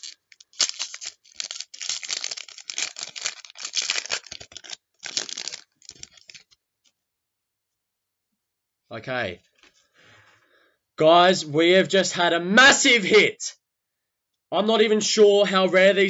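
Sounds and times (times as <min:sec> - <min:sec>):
cards flicked rustling: 0:00.0 - 0:06.6
wrapper crinkling and tearing: 0:00.0 - 0:06.6.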